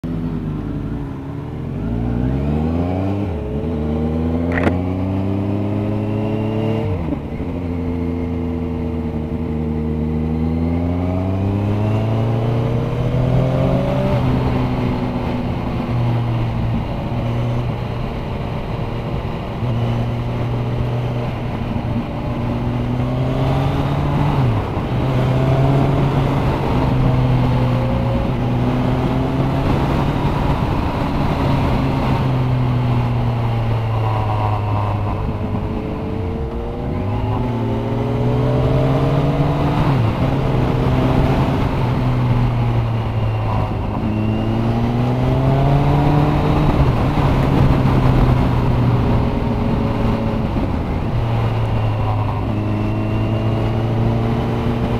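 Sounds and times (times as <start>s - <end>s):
motorcycle engine accelerating: 0.0s - 54.9s
wind noise: 1.6s - 54.9s.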